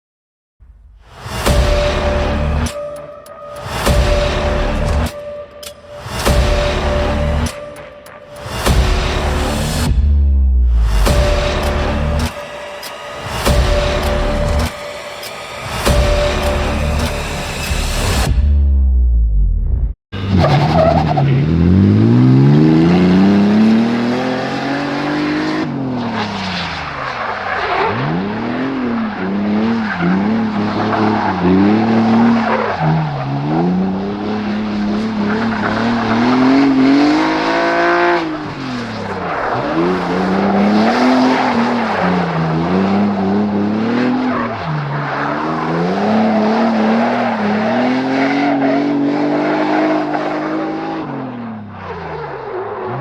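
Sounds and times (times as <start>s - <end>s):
car engine revving: 3.6s - 53.0s
tyres skidding and squealing: 20.2s - 53.0s.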